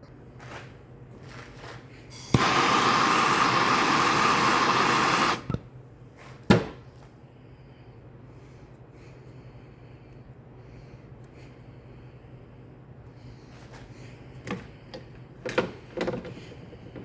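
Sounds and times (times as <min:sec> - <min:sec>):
torch flame hissing: 0:02.2 - 0:05.6
torch lighting click: 0:02.2 - 0:05.6.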